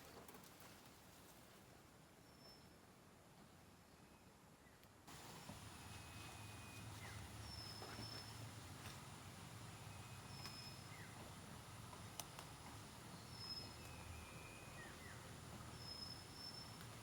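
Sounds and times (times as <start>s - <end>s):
faint forest ambience: 0.0s - 17.0s
bird whistling: 10.0s - 11.1s, 13.2s - 15.2s, 15.8s - 16.8s.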